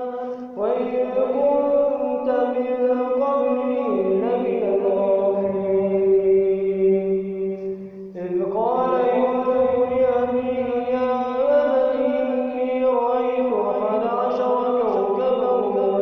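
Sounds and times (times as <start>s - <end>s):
man reciting melodically: 0.0s - 16.0s
breath: 0.1s - 0.6s, 7.6s - 8.2s.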